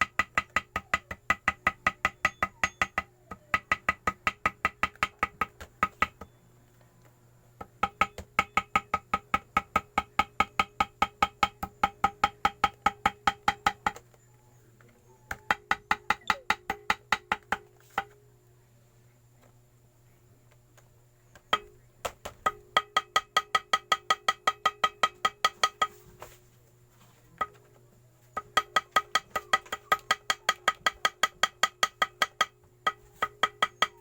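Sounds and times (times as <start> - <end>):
small hammer tapping metal: 0.0 - 6.3, 7.6 - 14.1, 15.3 - 18.2, 21.3 - 26.0, 27.4 - 27.7, 28.3 - 34.0.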